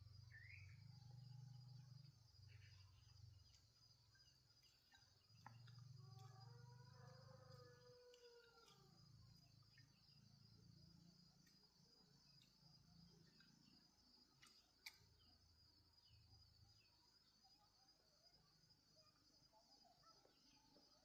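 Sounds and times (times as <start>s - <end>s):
crickets droning: 0.0s - 21.0s
faint clicks: 14.4s - 15.1s.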